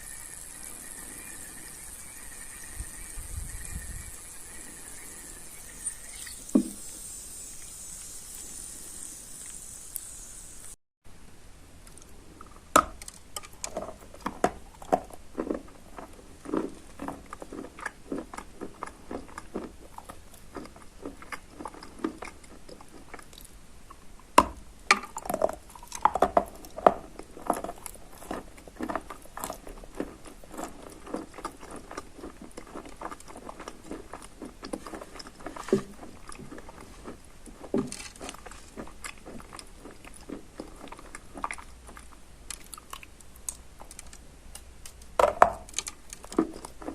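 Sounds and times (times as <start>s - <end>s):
chewing chalk crunches: 13.0s - 24.1s, 25.0s - 46.9s.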